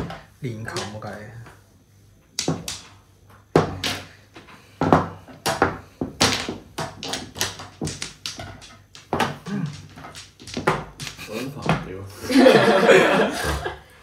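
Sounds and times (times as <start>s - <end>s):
mahjong tiles clacking on table: 0.0s - 1.0s, 2.4s - 4.1s, 4.8s - 11.9s.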